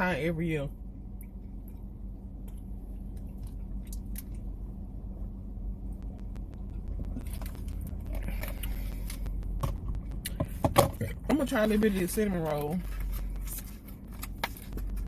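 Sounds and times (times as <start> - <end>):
steady low hum: 0.0 - 15.0
person chewing food: 6.1 - 10.6.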